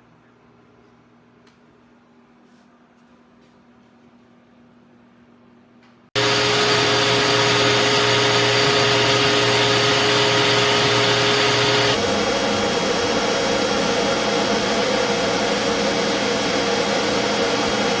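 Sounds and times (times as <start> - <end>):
shop vacuum running: 6.2 - 18.0.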